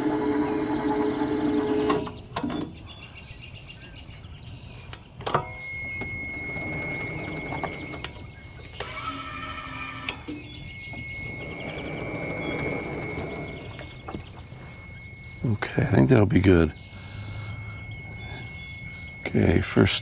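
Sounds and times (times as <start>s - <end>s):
motor whining: 0.0s - 2.8s, 5.2s - 20.0s
thin high whine: 5.3s - 20.0s.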